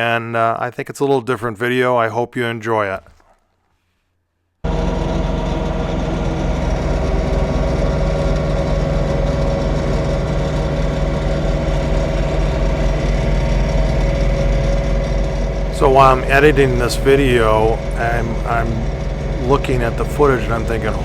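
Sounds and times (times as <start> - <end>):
tractor diesel engine running: 4.6 - 21.0.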